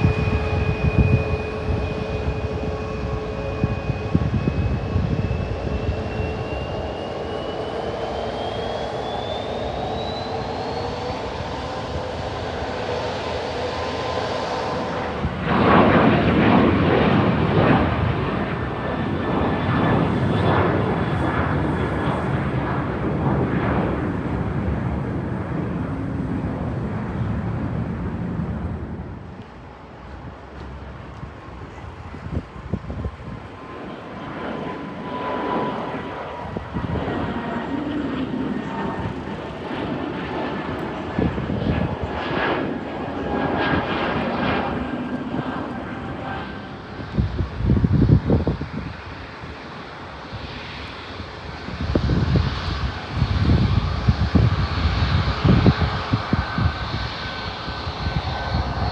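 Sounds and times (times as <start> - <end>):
thin engine whine: 0.0 - 28.9
jet airliner engines roaring: 0.0 - 58.9.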